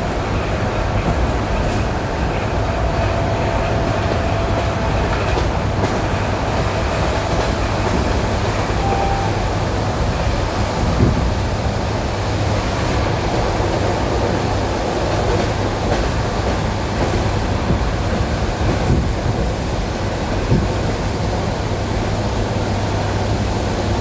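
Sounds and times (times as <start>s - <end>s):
train wheels rumbling: 0.0s - 24.0s.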